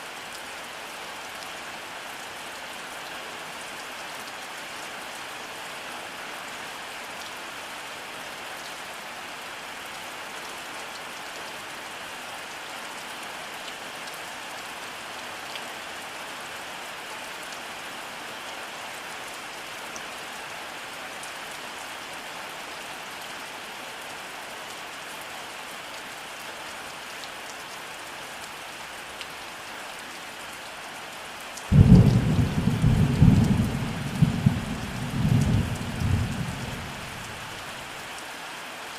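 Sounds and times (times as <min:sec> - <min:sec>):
steady rain: 0:00.0 - 0:38.9
thunder rumble: 0:31.7 - 0:37.5.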